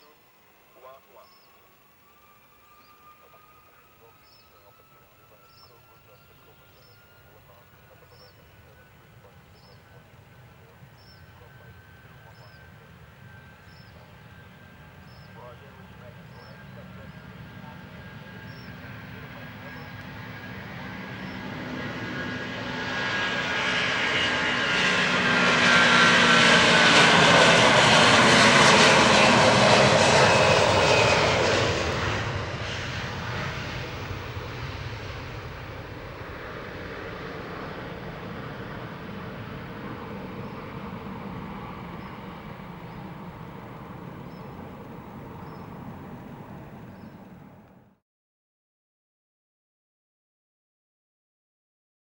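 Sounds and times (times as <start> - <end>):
jet airliner engines passing: 0.0 - 48.0.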